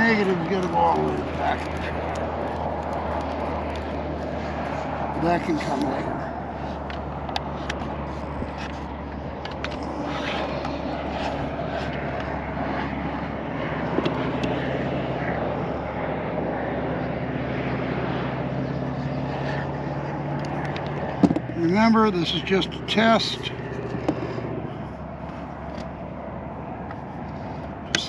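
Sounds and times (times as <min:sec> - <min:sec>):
engine-like drone: 0:00.0 - 0:28.0.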